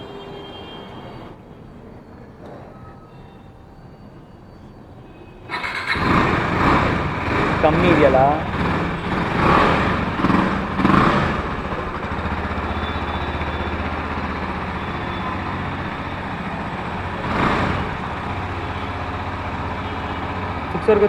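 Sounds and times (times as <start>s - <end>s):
motorcycle engine idling: 5.5s - 21.0s.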